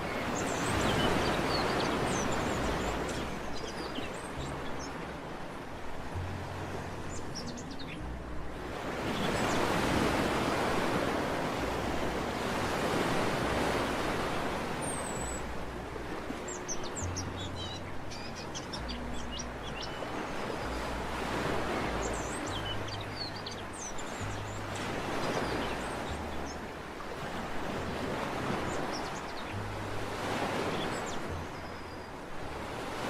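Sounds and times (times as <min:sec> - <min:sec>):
small birds chirping: 0:00.0 - 0:05.0, 0:16.4 - 0:26.7, 0:28.3 - 0:29.6
sea surf washing ashore: 0:00.0 - 0:33.0.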